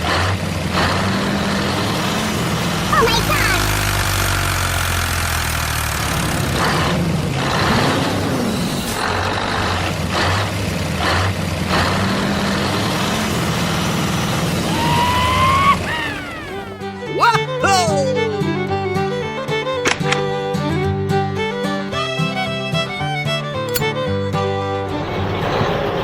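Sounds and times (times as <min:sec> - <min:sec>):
heavy truck engine running: 0:00.0 - 0:17.8
rising whine: 0:14.3 - 0:17.2.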